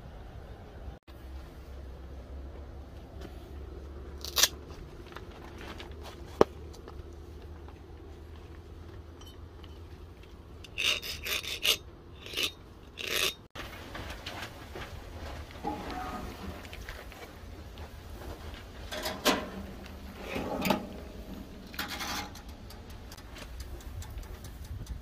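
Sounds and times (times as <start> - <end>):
file rasping on knife blade: 10.7 - 13.4.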